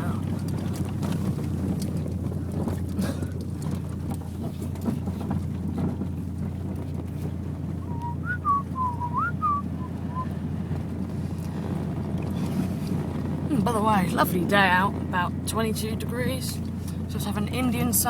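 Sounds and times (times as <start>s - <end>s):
car exhaust low drone: 0.0s - 18.0s
warbling whistle: 7.8s - 10.3s.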